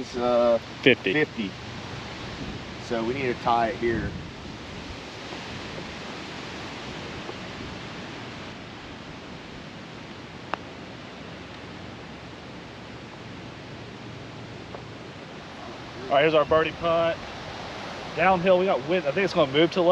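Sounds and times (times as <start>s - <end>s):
wind blowing across microphone: 0.0s - 19.9s.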